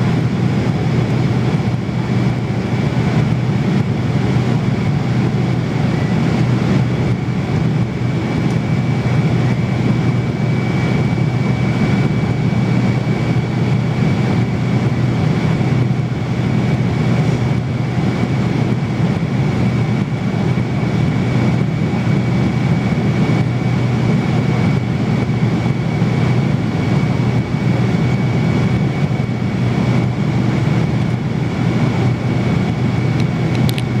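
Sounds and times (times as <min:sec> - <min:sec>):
airliner cabin roar: 0:00.0 - 0:34.0.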